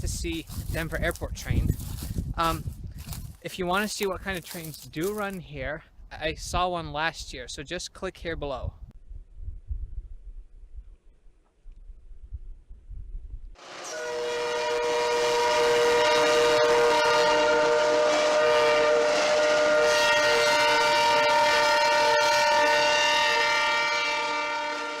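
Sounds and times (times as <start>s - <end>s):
train air horn chord: 13.6s - 25.0s.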